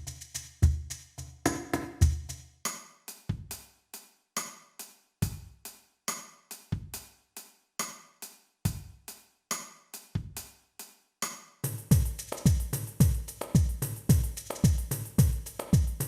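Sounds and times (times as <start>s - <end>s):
drum machine rhythm: 0.0s - 3.7s, 5.2s - 5.7s, 8.7s - 10.5s, 11.6s - 16.0s.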